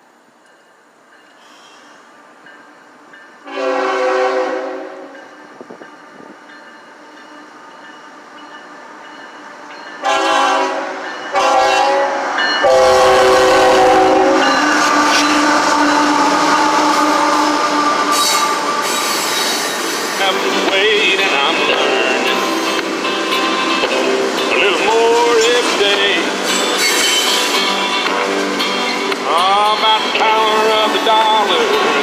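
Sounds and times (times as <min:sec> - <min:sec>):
train rumbling past: 0:00.0 - 0:32.0
locomotive air horn blasts: 0:03.4 - 0:05.2, 0:10.0 - 0:19.2.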